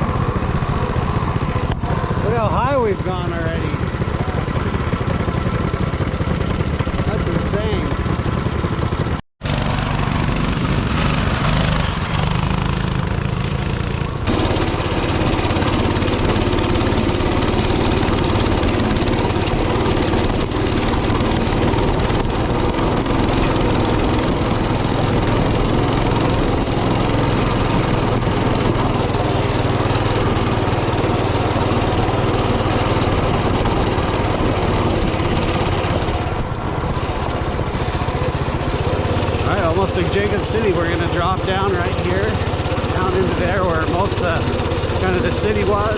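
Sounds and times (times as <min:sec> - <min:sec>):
mini bike engine running: 0:00.0 - 0:45.9.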